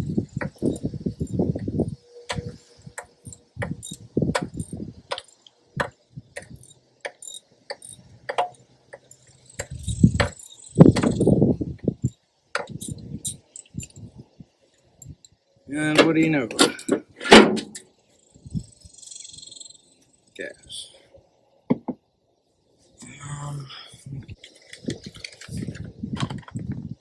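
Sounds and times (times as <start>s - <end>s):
socket wrench clicking: 2.3s - 11.3s
rustling handling: 24.4s - 26.6s.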